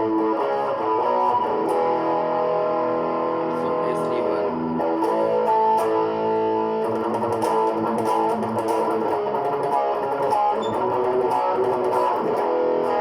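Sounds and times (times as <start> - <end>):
overdriven electric guitar notes: 0.0 - 13.0.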